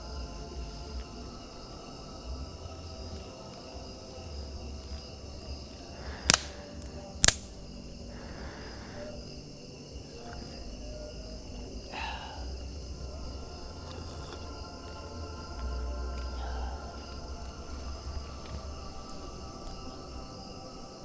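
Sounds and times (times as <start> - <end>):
crickets chirring: 0.0 - 21.0
loud sharp clicks: 6.1 - 7.6.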